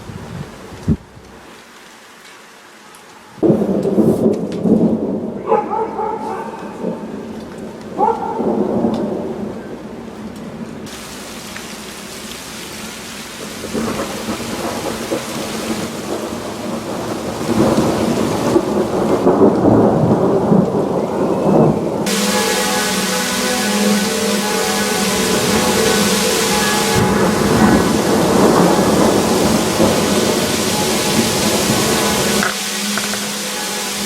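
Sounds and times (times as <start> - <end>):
thunder rumbling: 3.4 - 34.0
hiss of falling graupel: 10.9 - 14.3, 27.9 - 34.0.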